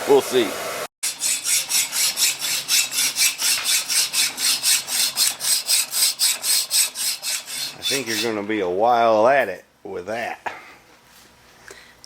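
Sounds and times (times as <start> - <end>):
hacksaw cutting metal: 1.0 - 8.5.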